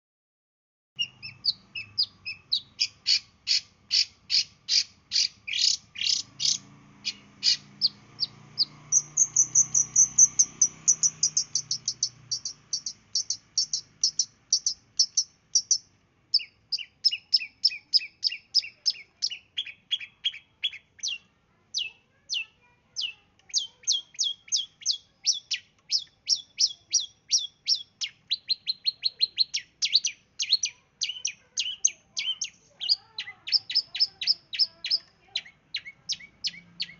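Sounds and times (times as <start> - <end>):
bird singing sharp high notes: 1.0 - 21.2.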